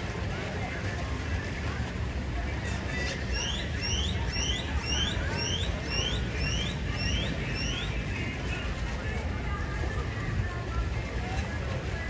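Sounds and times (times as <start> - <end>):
bird whistled chirps: 3.4 - 8.1.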